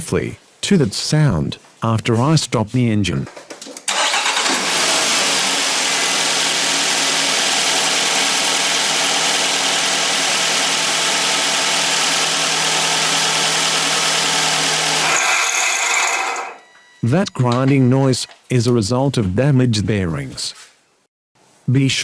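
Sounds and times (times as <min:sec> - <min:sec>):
car engine idling: 0:03.9 - 0:11.0
alternator grinding: 0:03.9 - 0:16.6.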